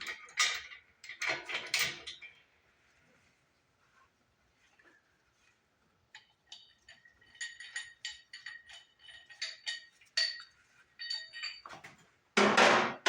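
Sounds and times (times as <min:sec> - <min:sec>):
small metal parts clinking: 0:06.2 - 0:11.8.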